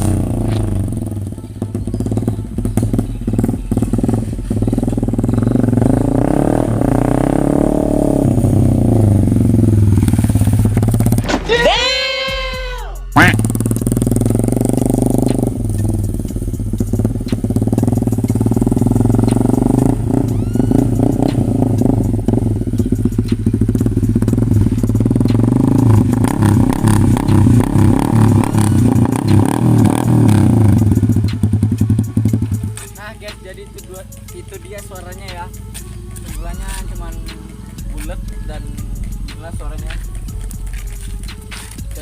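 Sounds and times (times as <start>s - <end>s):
motorcycle engine revving: 0.0s - 11.4s, 13.1s - 42.0s.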